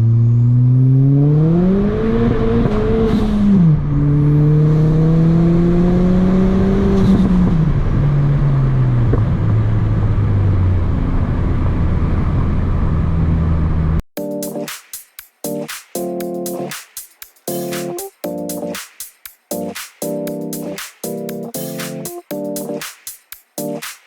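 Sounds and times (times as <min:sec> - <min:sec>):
turbocharged car engine accelerating: 0:00.0 - 0:08.0.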